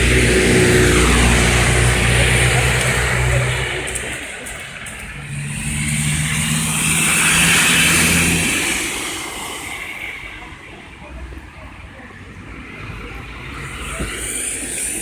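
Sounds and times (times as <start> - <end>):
car driving past: 0.0 - 10.6.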